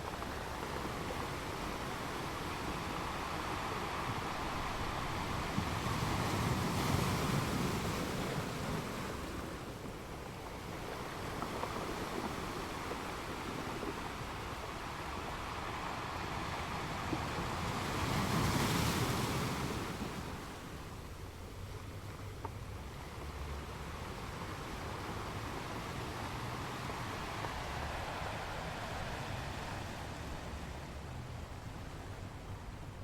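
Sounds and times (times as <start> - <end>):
ocean waves breaking: 0.0 - 33.0.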